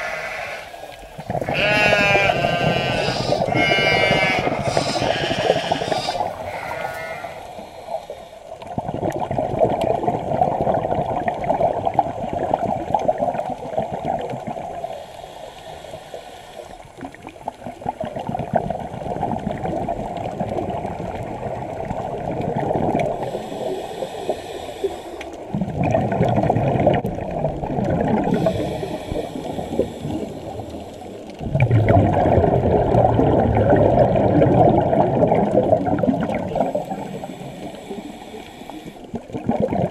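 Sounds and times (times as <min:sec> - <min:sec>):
diver exhaling bubbles underwater: 0:00.0 - 0:14.9, 0:17.0 - 0:39.9
regulator inhalation hiss: 0:02.8 - 0:08.4, 0:14.9 - 0:16.8, 0:23.2 - 0:25.4, 0:28.3 - 0:31.2, 0:36.8 - 0:39.1.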